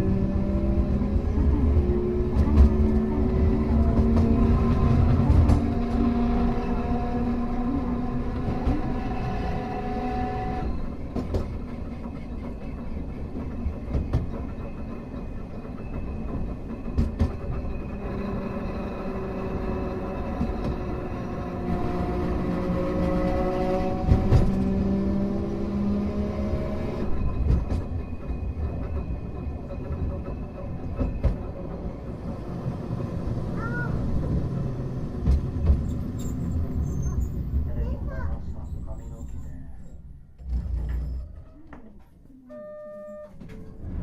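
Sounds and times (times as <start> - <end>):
tram motor whine: 0.0 - 37.8
wheels clacking over rail joints: 10.8 - 18.8, 27.0 - 38.0.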